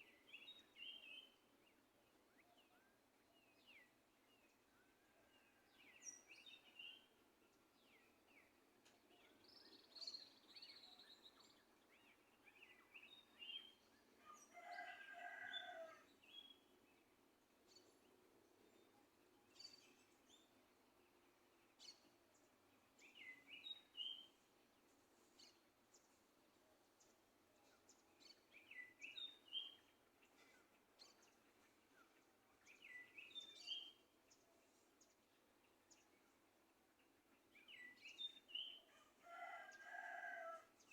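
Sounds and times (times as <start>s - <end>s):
low background hiss: 0.0s - 39.2s
small birds chirping: 18.7s - 40.3s.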